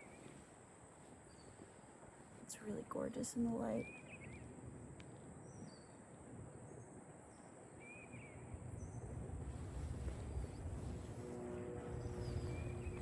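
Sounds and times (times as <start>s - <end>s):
low rumble: 9.1s - 13.0s
songbirds chirping: 10.0s - 13.0s.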